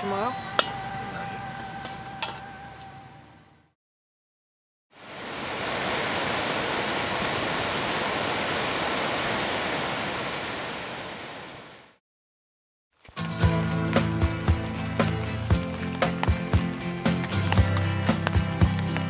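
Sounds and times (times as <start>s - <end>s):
rushing white water: 5.0s - 12.0s.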